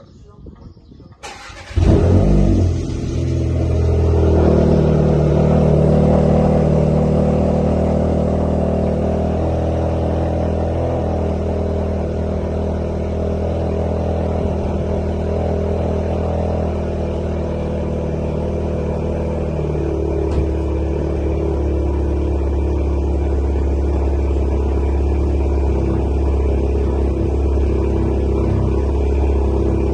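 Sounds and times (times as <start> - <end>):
car engine starting: 1.2 - 29.9
loud exhaust fast idle: 1.4 - 29.9.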